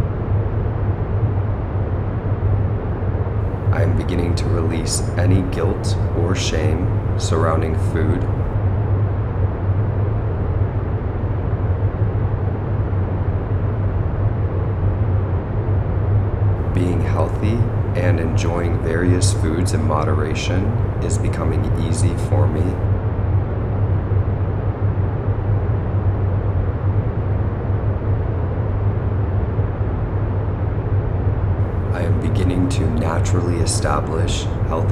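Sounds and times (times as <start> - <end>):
low rumbling noise with hiss: 0.0 - 34.9
deep hum: 3.4 - 8.6, 16.6 - 22.9, 31.6 - 34.9
voice: 3.7 - 8.5, 16.7 - 22.8, 31.9 - 34.9.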